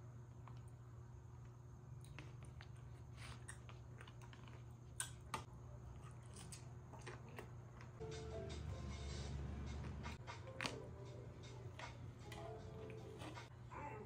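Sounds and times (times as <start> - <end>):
low steady hum: 0.0 - 14.0
faint chewing: 1.4 - 8.0.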